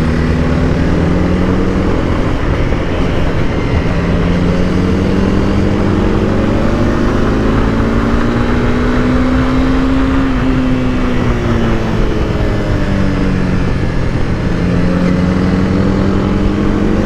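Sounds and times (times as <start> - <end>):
motorcycle engine revving: 0.0 - 17.0
wind rush over microphone: 0.0 - 17.0.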